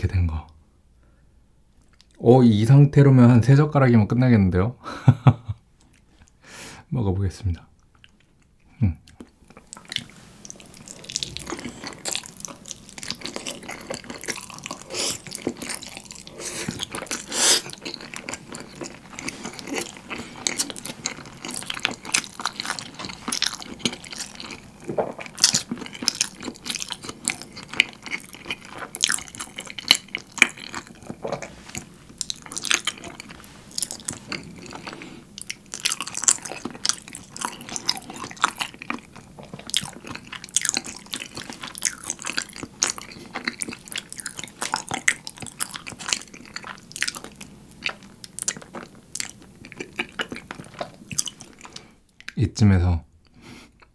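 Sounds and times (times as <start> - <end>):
wet chewing: 9.1 - 52.4.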